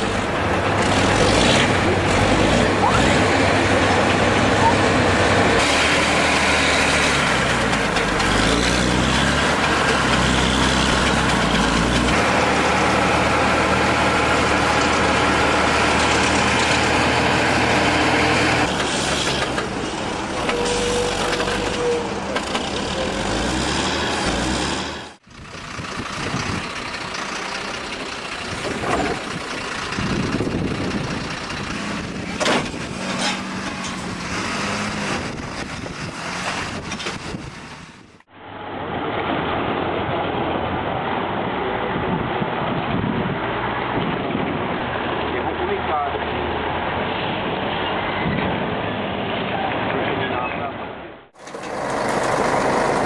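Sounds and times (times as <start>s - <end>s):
rough machine noise: 0.0s - 25.2s, 51.4s - 53.0s
heavy diesel machinery working: 0.0s - 50.3s, 51.1s - 53.0s.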